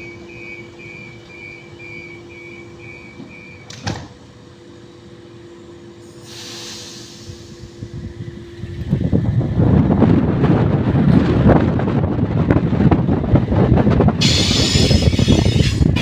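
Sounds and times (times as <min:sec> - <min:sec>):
train door warning beeps: 0:00.0 - 0:04.2
train doors shutting thud: 0:00.0 - 0:04.3
steady hum: 0:00.0 - 0:06.3
air hiss: 0:06.0 - 0:07.8, 0:14.2 - 0:16.0.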